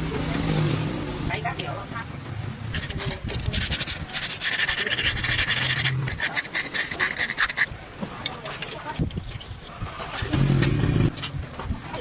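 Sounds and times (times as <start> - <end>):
rough scraping on hard surface: 2.7 - 11.4.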